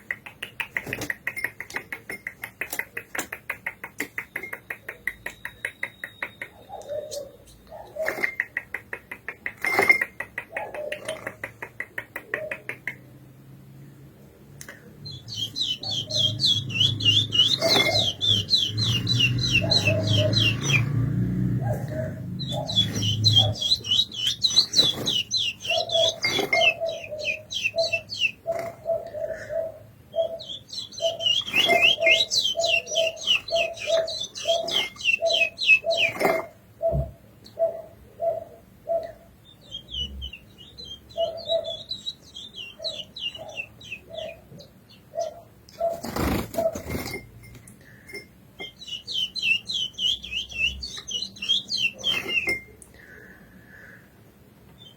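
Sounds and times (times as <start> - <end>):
bird singing high whistled notes: 15.1 - 20.9, 30.4 - 36.1, 48.7 - 52.7.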